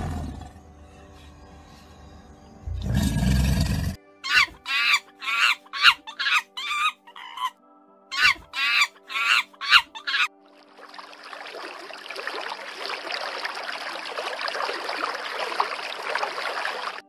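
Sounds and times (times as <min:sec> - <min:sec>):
low rumbling roar: 0:00.0 - 0:00.6
harsh animal calls: 0:02.8 - 0:10.3.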